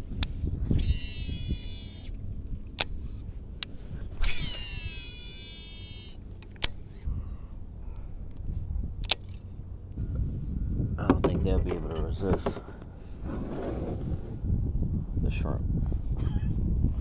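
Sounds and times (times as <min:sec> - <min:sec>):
fishing reel whining: 0:00.0 - 0:07.0
sharp clicks: 0:00.0 - 0:07.1, 0:07.9 - 0:09.4
wind noise on microphone: 0:00.0 - 0:17.0.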